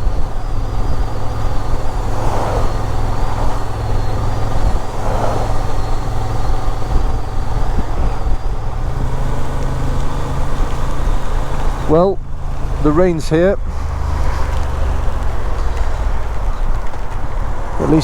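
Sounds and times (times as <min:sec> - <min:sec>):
wind noise: 0:00.0 - 0:13.0
motorcycle engine running: 0:00.0 - 0:18.0
road noise: 0:00.0 - 0:18.0.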